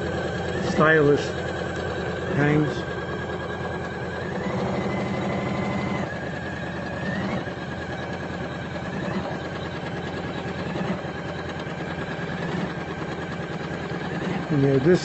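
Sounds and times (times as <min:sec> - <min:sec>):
embroidery machine needle patter: 0:00.0 - 0:15.0
machine motor whine: 0:00.0 - 0:15.0.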